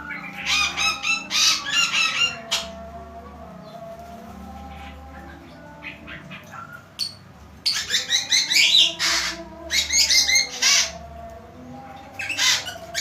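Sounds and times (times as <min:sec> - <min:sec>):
songbird chirping: 0:00.0 - 0:13.0
harsh rasping bird calls: 0:05.8 - 0:11.0.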